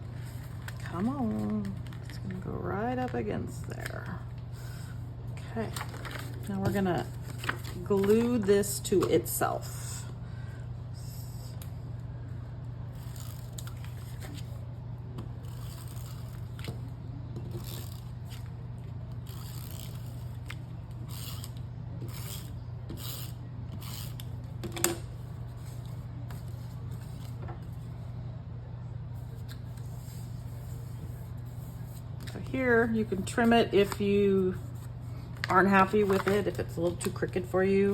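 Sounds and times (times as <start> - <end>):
steady low hum: 0.0 - 37.9
paper rustling and scraping: 5.6 - 8.7, 12.9 - 14.6, 25.5 - 27.9, 29.2 - 37.2.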